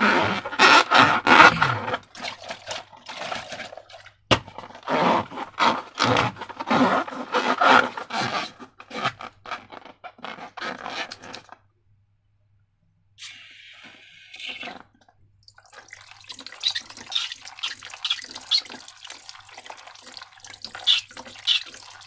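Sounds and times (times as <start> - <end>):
slime and balloons scraping: 0.0 - 11.6, 16.2 - 19.2, 20.0 - 22.0.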